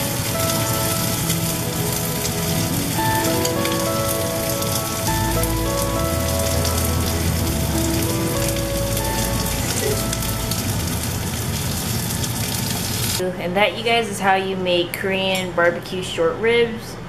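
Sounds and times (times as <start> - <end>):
melody over bass line: 0.0 - 12.0
dense hiss like rain: 0.0 - 13.2.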